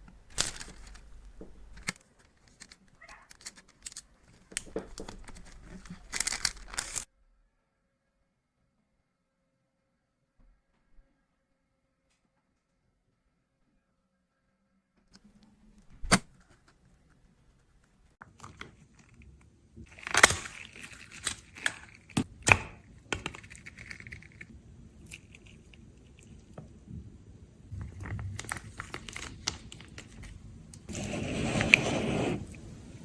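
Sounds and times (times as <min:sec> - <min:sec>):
small objects clicking and tapping: 0:18.2 - 0:26.7
scraping and rustling: 0:27.7 - 0:32.7.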